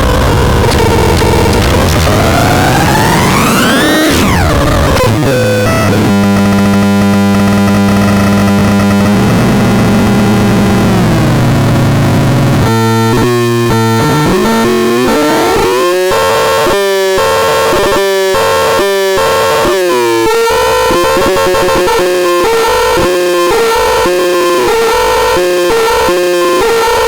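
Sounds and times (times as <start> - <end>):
synthesizer falling pitch sweep: 0.0 - 6.2
buzzy low synthesizer tone: 0.0 - 27.0
pulsing synthesizer pattern: 0.3 - 7.5.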